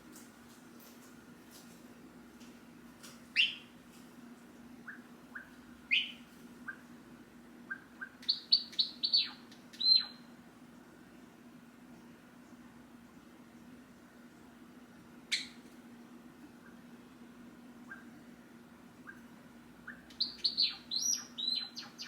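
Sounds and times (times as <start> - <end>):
faint steady hum: 0.0 - 22.0
sparrow chirping: 3.4 - 3.6, 4.9 - 6.8, 7.7 - 10.2, 19.9 - 22.0.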